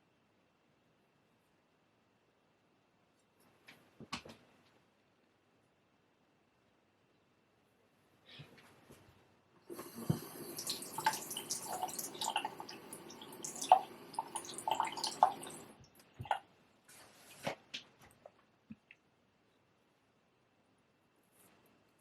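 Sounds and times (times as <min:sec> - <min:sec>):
water running from a tap: 0:09.7 - 0:16.4.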